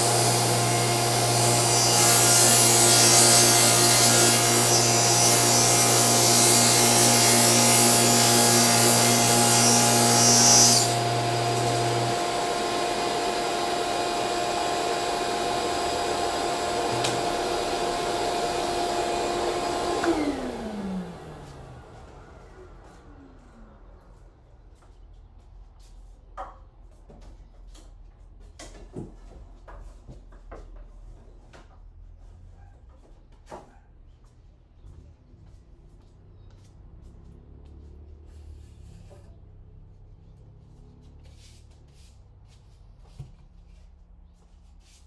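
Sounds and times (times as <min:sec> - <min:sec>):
table saw blade cutting plywood: 0:00.0 - 0:21.6
table saw motor hum: 0:00.0 - 0:22.3.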